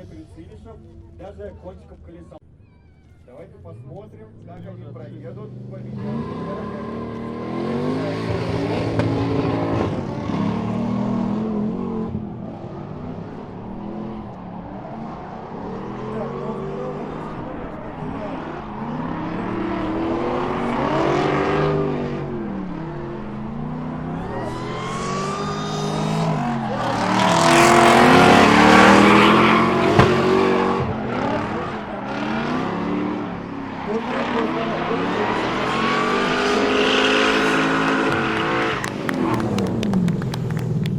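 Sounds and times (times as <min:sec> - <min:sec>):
car engines revving hard: 0:03.7 - 0:40.9
sharp pop: 0:29.9 - 0:30.4.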